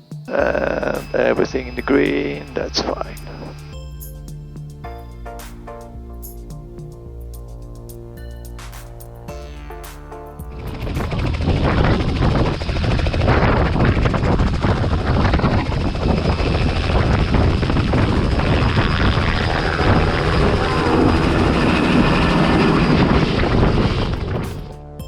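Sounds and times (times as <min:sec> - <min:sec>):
helicopter engine and rotor: 0:00.4 - 0:04.4, 0:10.5 - 0:24.9.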